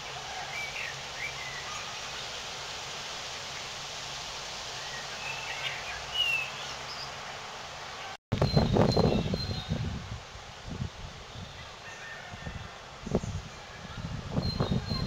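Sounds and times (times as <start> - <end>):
steady background hiss: 0.0 - 15.0
blackbird singing: 14.4 - 15.0.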